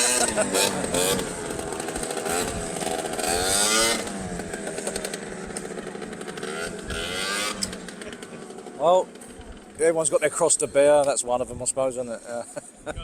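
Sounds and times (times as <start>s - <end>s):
motorcycles riding past: 0.0s - 11.0s.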